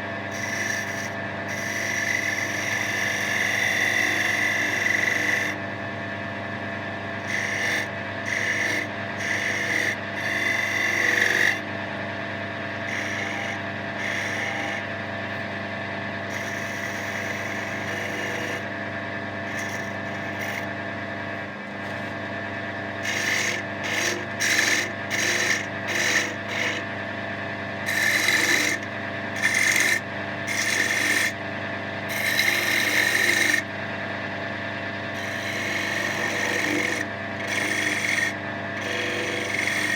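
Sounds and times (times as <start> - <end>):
wood lathe humming: 0.0 - 5.7, 6.6 - 11.8, 12.5 - 39.9
turning tool scraping wood: 0.3 - 5.6, 7.2 - 11.6, 12.8 - 15.5, 16.3 - 18.8, 19.4 - 20.7, 21.7 - 22.3, 23.0 - 27.0, 27.8 - 33.9, 35.0 - 39.9.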